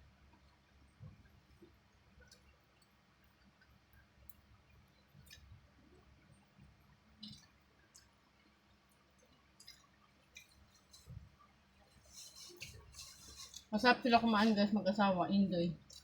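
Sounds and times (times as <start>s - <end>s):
mouth clicks and smacks eating: 2.2s - 3.8s, 7.2s - 8.5s, 9.2s - 11.3s.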